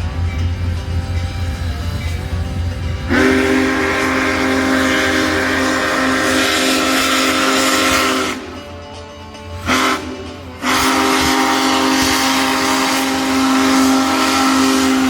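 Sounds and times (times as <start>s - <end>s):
steam whistle blast: 3.0s - 8.7s, 9.6s - 15.0s.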